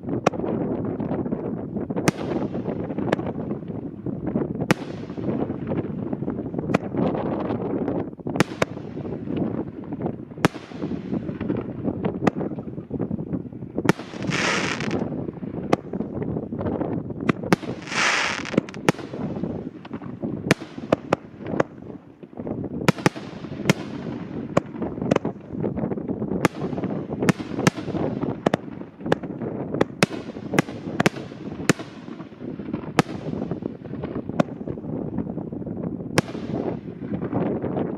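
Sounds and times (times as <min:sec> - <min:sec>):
firework crackle: 0:00.0 - 0:37.9
firework shells banging: 0:14.0 - 0:15.0, 0:17.6 - 0:18.9.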